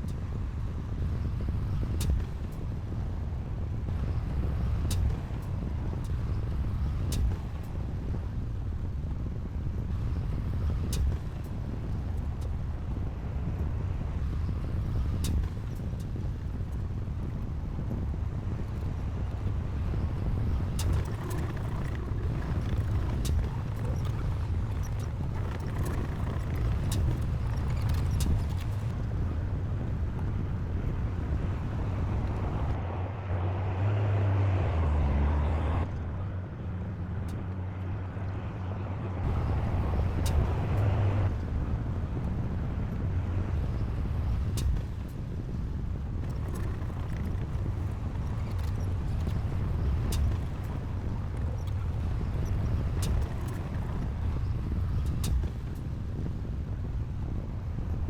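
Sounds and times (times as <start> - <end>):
diesel engine running: 18.3 - 29.6.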